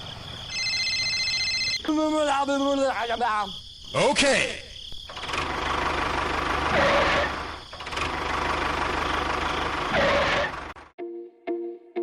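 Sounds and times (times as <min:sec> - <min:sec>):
small engine running: 0:05.1 - 0:10.9.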